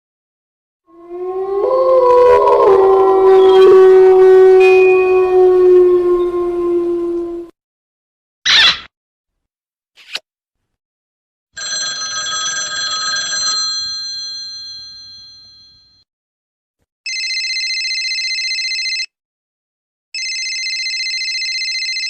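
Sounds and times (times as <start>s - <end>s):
telephone ringing: 11.6s - 16.0s, 17.1s - 19.1s, 20.2s - 22.0s.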